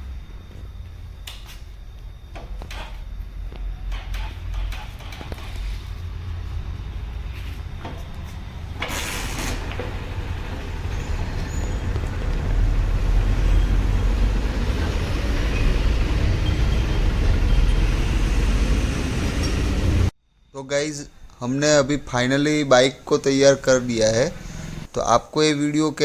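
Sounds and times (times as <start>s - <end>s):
motorcycle engine running: 9.6s - 15.4s.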